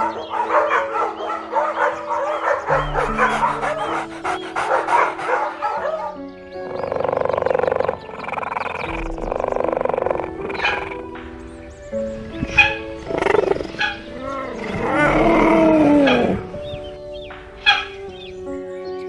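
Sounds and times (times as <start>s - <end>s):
background music with held notes: 0.0s - 19.0s
harsh buzzing animal call: 10.1s - 18.6s
puppies yipping and barking: 10.1s - 18.6s.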